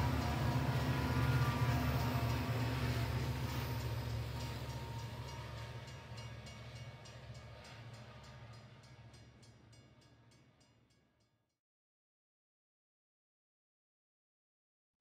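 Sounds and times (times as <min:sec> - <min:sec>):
train low drone: 0:00.0 - 0:11.3.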